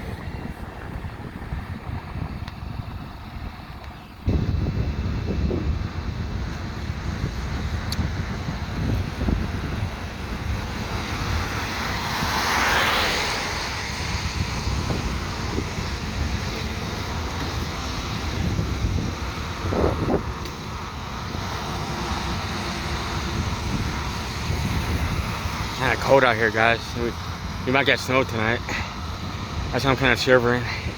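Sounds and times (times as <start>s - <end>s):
wind buffeting microphone: 0.0s - 30.9s
vehicle tyres hissing on wet road: 6.4s - 27.6s.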